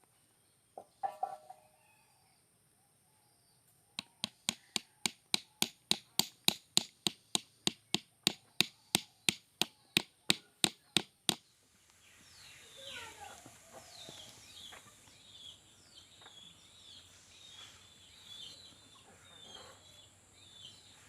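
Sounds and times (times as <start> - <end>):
sharp light taps on wood: 4.0 - 11.4.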